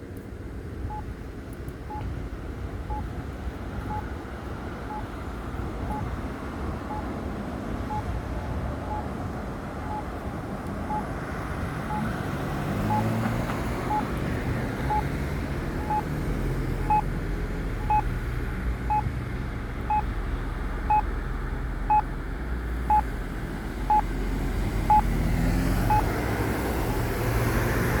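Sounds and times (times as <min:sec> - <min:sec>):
traffic passing: 0:00.0 - 0:28.0
pedestrian signal beeping: 0:00.8 - 0:01.1, 0:02.9 - 0:03.1, 0:03.9 - 0:04.1, 0:04.9 - 0:05.1, 0:05.9 - 0:06.2, 0:06.9 - 0:07.1, 0:07.9 - 0:09.1, 0:09.8 - 0:10.2, 0:10.9 - 0:11.1, 0:11.9 - 0:12.1, 0:12.8 - 0:13.2, 0:13.8 - 0:14.1, 0:14.8 - 0:15.2, 0:15.8 - 0:16.1, 0:16.8 - 0:17.1, 0:17.8 - 0:18.1, 0:18.8 - 0:19.1, 0:19.9 - 0:20.1, 0:20.9 - 0:21.1, 0:21.9 - 0:22.1, 0:22.9 - 0:23.1, 0:23.9 - 0:24.1, 0:24.9 - 0:25.1, 0:25.9 - 0:26.1.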